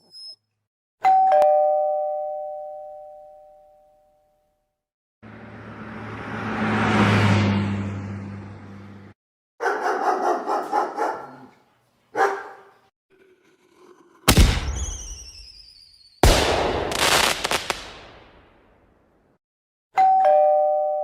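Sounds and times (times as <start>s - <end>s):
dog barking: 9.6s - 12.9s
falling firework whistles: 14.3s - 18.2s
firework crackling: 14.3s - 18.5s
firework bangs: 14.3s - 18.7s.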